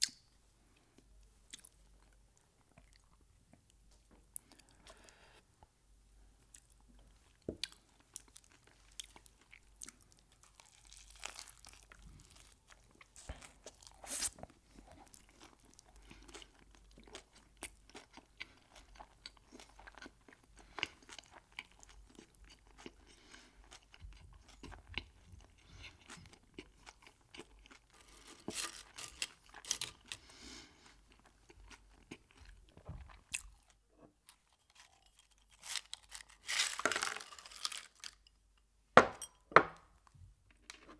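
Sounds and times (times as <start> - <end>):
chewing crunchy food: 6.5 - 38.3.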